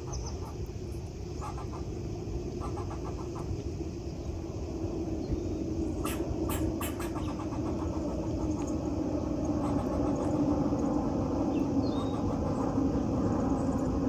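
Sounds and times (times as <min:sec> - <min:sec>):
faint bird chirp: 0:00.0 - 0:01.8, 0:05.2 - 0:12.8
low rumble of traffic: 0:00.0 - 0:14.0.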